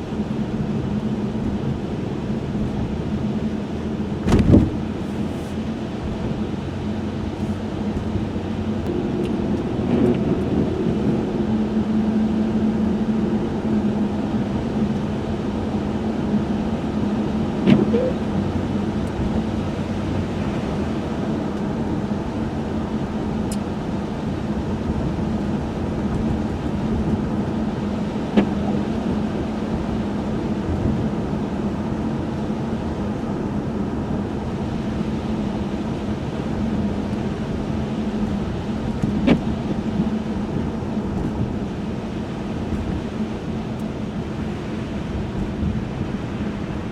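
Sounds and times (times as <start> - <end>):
car engine hum: 0.0 - 46.9
tyre and road noise: 3.7 - 11.6, 14.4 - 29.9.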